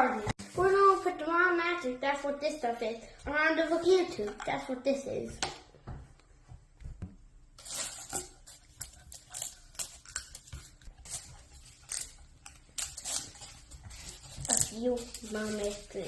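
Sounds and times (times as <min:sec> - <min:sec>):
modeling compound crinkling and tearing: 0:07.6 - 0:16.0.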